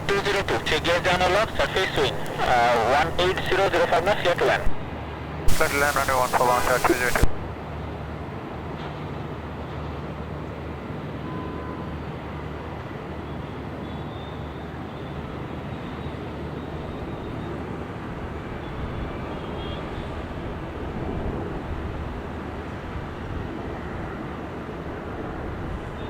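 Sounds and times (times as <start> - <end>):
airliner engines rumbling: 0.0 - 4.9, 5.5 - 7.5.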